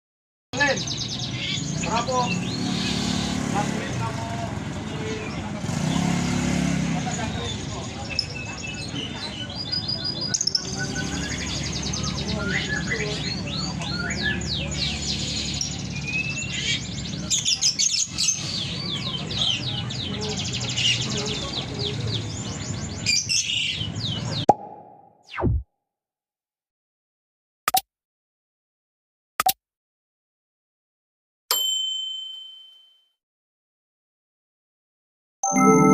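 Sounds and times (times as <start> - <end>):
sharp click: 27.7 - 27.9, 29.4 - 29.6
bell-like ding: 31.5 - 33.1, 35.4 - 35.9.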